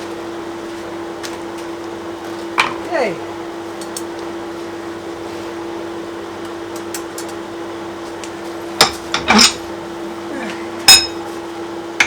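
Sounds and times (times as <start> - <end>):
fan hum: 0.0 - 12.0
metal tools clanking: 8.8 - 9.6, 10.9 - 11.2.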